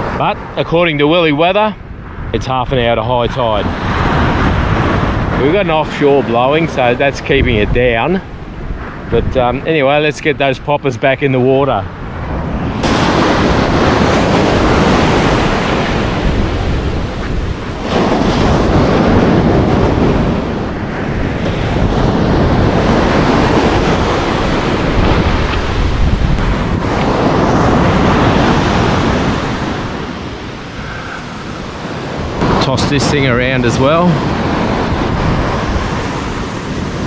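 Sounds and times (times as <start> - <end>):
surf breaking on a beach: 0.0 - 37.0
wind buffeting microphone: 0.0 - 37.0.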